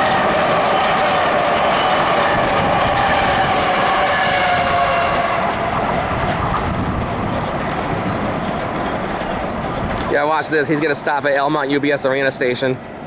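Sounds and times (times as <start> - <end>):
electric train motor whine: 0.0 - 10.1
train wheels clicking over rails: 0.0 - 13.0.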